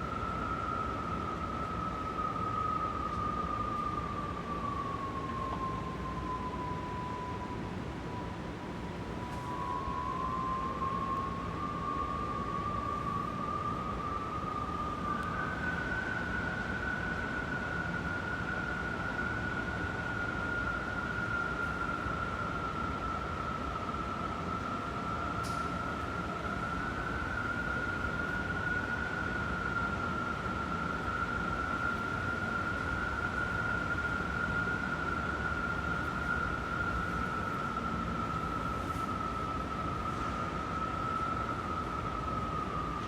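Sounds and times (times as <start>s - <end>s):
strong wind howling: 0.0s - 43.0s.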